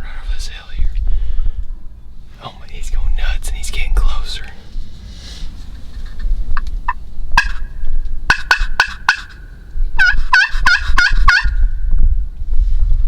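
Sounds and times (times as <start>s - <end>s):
turkey gobbling: 5.1s - 11.6s.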